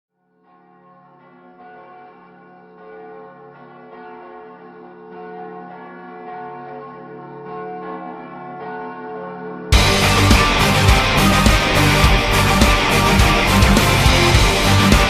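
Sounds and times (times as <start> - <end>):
church bells ringing: 0.4 - 15.0
heavy metal music: 9.7 - 15.0.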